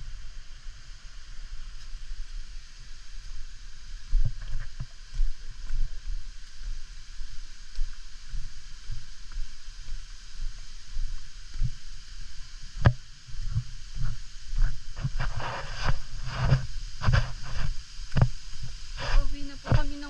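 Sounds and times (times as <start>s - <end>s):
low thumps on microphone: 4.1s - 5.8s, 12.8s - 20.0s.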